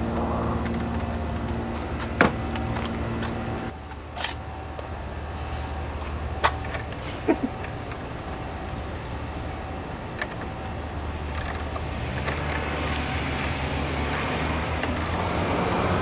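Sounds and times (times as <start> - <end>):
light high-pitched ticks: 11.3 - 12.7, 13.4 - 15.3.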